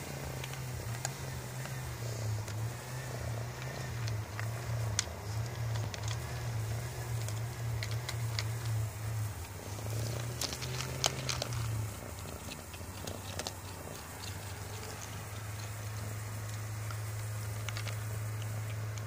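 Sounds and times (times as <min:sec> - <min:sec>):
cat purring: 0:00.0 - 0:19.0
cats crunching dry food: 0:00.0 - 0:19.0.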